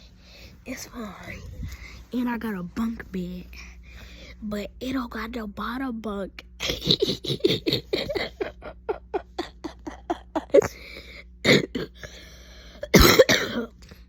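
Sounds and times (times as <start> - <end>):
woman coughing: 6.6 - 12.2, 12.8 - 13.8.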